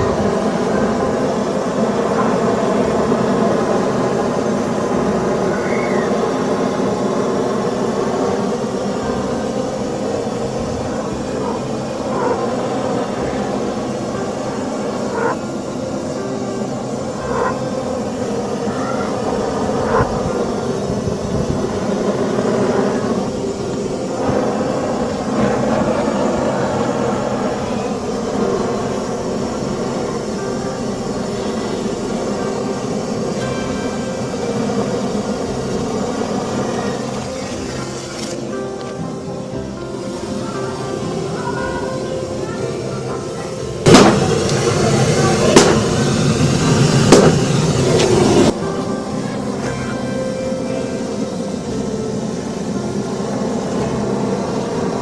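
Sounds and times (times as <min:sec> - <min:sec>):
faint hum: 0:00.0 - 0:55.0
fire roaring: 0:00.0 - 0:55.0
loud steady rumbling: 0:00.0 - 0:55.0
faint bird chirp: 0:05.4 - 0:06.5, 0:17.2 - 0:17.8.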